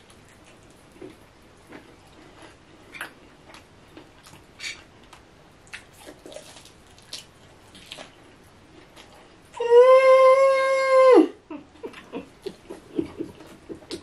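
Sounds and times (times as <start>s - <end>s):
person chewing food: 0.0s - 9.5s.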